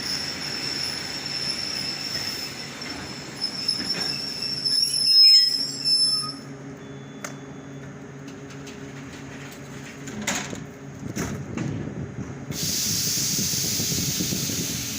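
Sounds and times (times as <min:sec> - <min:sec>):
wheel squeal: 0:00.0 - 0:06.5.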